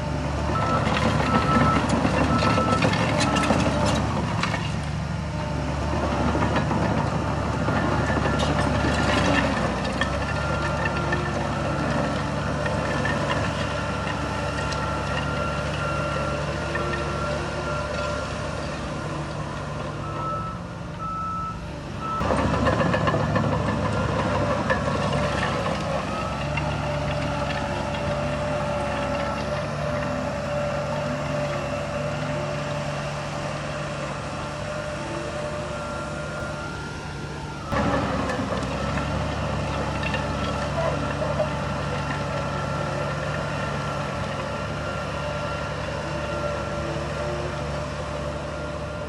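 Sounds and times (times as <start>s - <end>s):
heavy machinery diesel engines: 0.0s - 49.0s
reversing alarm beeping: 0.5s - 3.8s, 10.1s - 38.3s.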